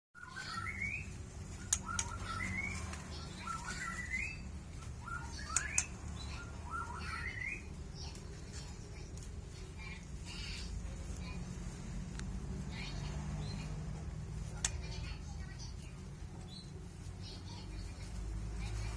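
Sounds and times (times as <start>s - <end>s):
bird singing whistled phrases: 0.2s - 1.1s, 3.4s - 7.7s
sharp clicks: 1.7s - 2.3s, 5.4s - 6.0s.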